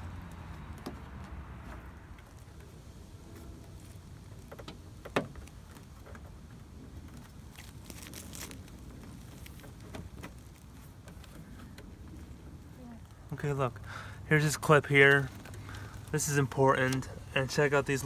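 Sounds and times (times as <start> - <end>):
low steady rumble: 0.0 - 18.0
plastic car trim clicking and rattling: 3.6 - 12.1.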